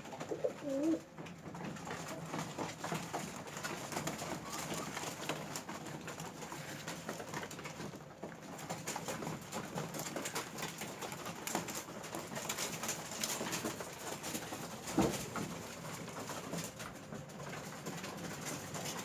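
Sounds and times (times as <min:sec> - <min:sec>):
pigeons cooing: 0:00.0 - 0:01.2.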